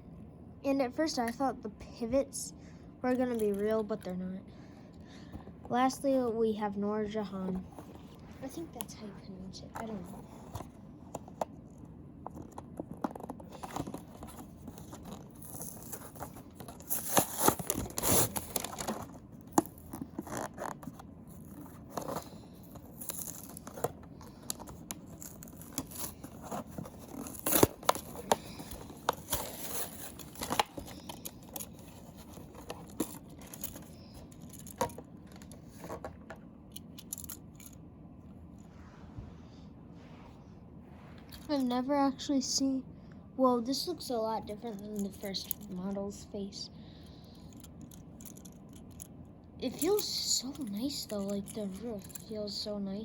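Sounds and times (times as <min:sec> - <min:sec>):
toy packaging tearing and crinkling: 0:12.3 - 0:35.0.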